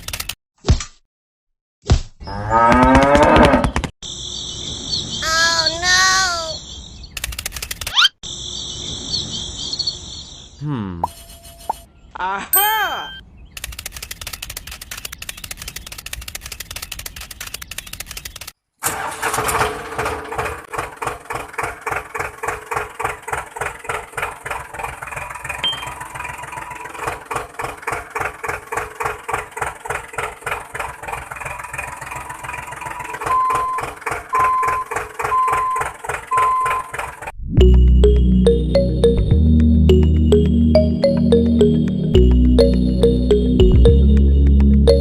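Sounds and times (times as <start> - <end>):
short even beeps: 12.6 - 13.2, 25.6 - 26.0, 33.2 - 36.9
diesel engine chugging: 19.0 - 45.0.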